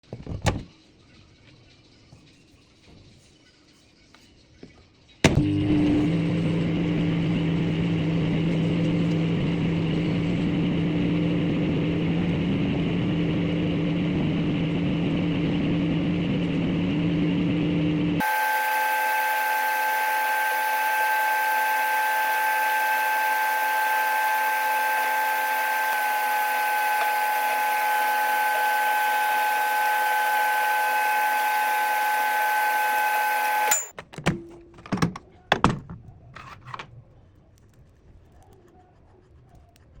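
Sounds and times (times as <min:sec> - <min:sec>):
microwave oven humming: 0:05.3 - 0:33.9.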